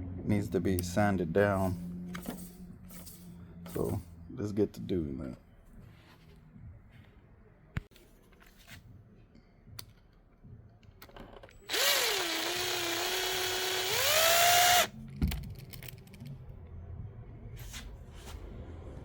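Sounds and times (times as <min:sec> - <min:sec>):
power drill whining: 0:11.6 - 0:14.9.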